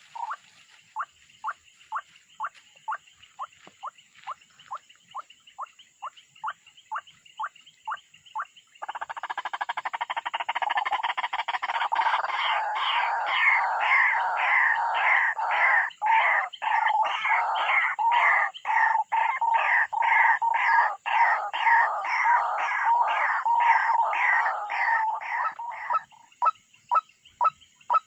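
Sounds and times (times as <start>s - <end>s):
animal calls with falling notes: 10.8s - 28.0s.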